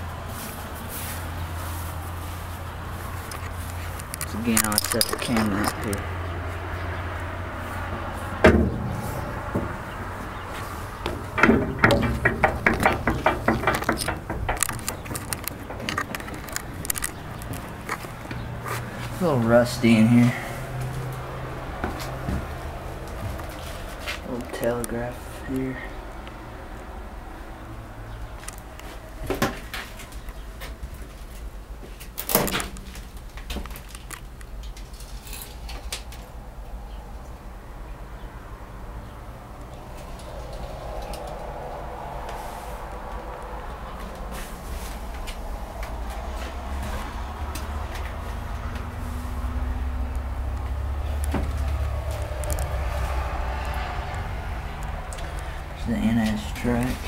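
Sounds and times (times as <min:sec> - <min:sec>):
footsteps on metal steps: 0:07.8 - 0:19.1
metal clunks and rattles: 0:08.4 - 0:18.5.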